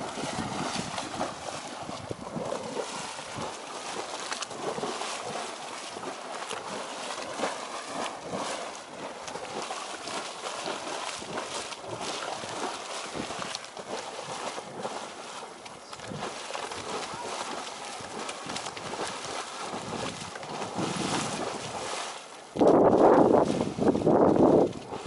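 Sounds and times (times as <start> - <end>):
geyser water splashing: 0.0 - 25.0.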